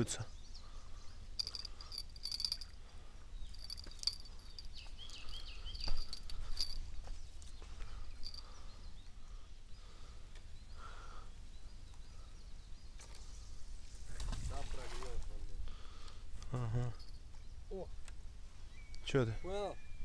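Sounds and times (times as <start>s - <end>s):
small birds chirping: 0.0s - 14.0s, 15.7s - 20.0s
wind rumble on microphone: 14.0s - 15.6s.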